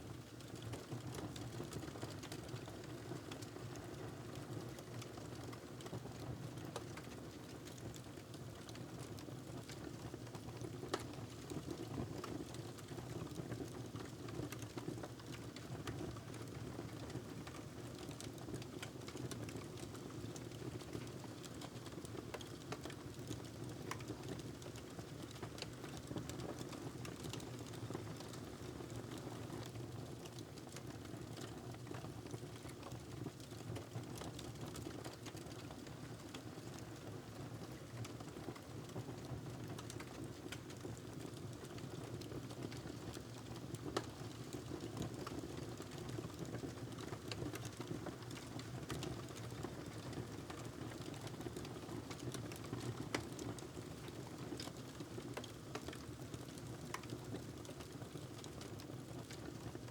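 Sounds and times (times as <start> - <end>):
wood fire crackling: 43.1 - 57.9.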